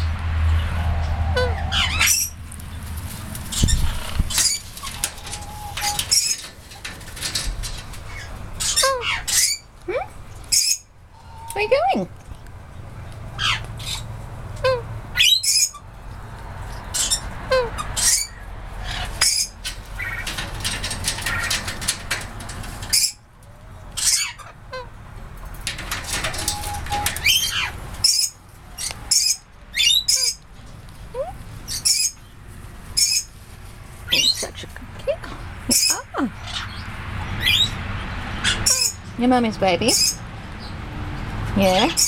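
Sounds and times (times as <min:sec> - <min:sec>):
birds chirping and squawking: 0:00.0 - 0:40.9, 0:41.6 - 0:42.0
rustling noise: 0:02.3 - 0:08.8, 0:18.6 - 0:23.8, 0:25.1 - 0:29.1, 0:30.4 - 0:35.7.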